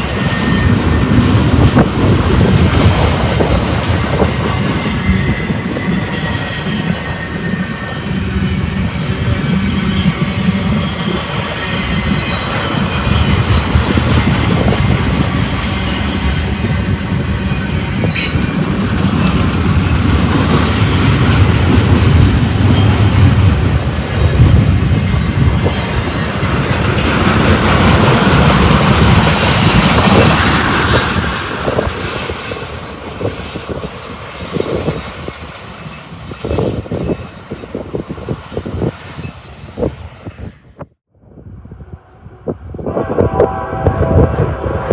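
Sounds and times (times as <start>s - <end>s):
high wheel squeal: 0.0s - 1.4s, 4.2s - 20.2s, 24.1s - 27.5s
freight train rumbling past: 0.0s - 44.9s.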